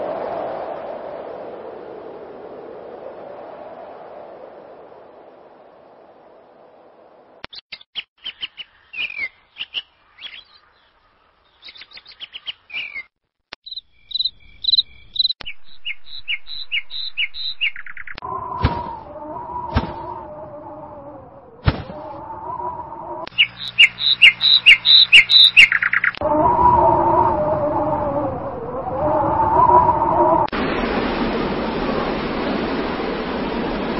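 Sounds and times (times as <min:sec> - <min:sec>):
birds chirping: 0:07.5 - 0:18.2, 0:22.0 - 0:26.2
low drawn-out wavering sound: 0:18.2 - 0:23.3, 0:26.2 - 0:33.8.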